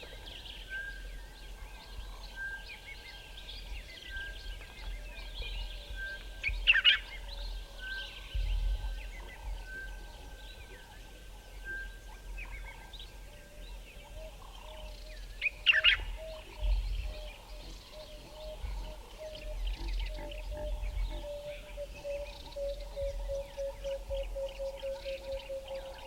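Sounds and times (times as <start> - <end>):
birds chirping and whistling: 11.6 - 26.0.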